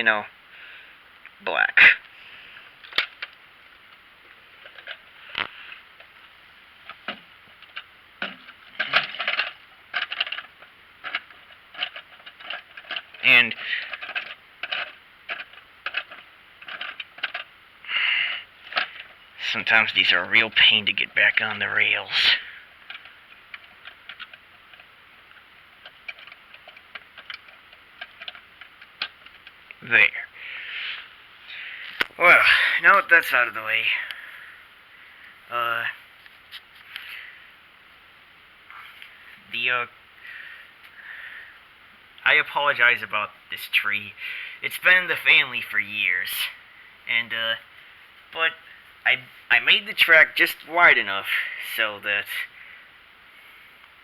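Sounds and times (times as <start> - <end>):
plastic toy train clicking on track: 7.1 - 17.5.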